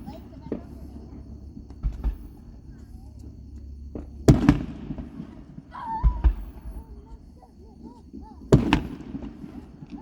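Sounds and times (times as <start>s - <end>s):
deep thuds: 0.0s - 5.3s
fireworks exploding: 0.0s - 10.0s.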